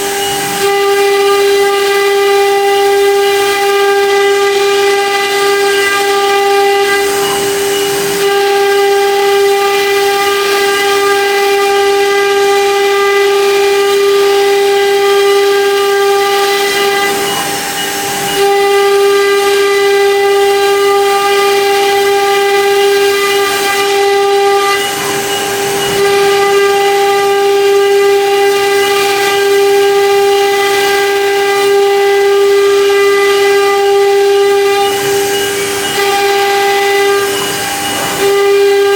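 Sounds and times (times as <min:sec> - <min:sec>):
high-pitched spindle motor whine: 0:00.0 - 0:38.9
cutting hiss: 0:34.2 - 0:38.9.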